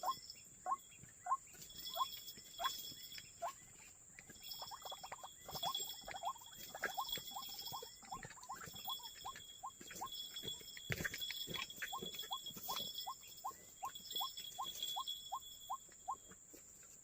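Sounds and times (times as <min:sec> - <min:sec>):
waterhen calling: 0:04.3 - 0:10.2.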